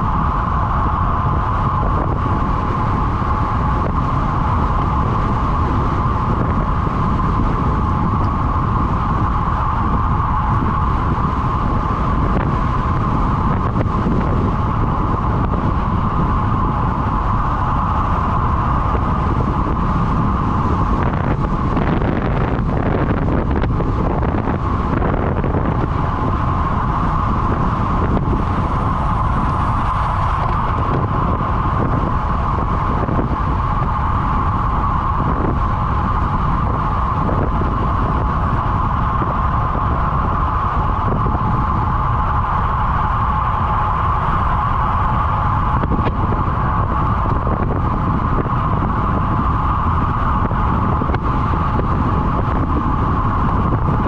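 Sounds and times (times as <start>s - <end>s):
bicycle road noise: 0.0s - 54.0s
constant hum: 0.0s - 54.0s
wind buffeting microphone: 0.0s - 54.0s.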